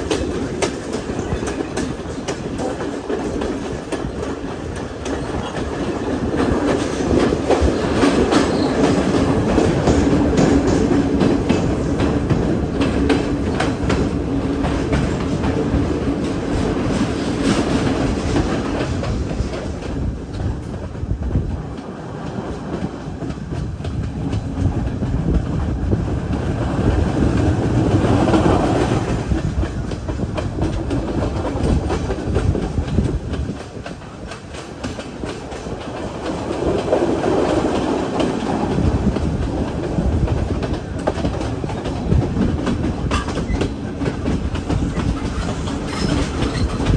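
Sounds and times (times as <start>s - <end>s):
train rumbling: 0.0s - 46.9s
wheels clicking over rail joints: 27.2s - 46.9s.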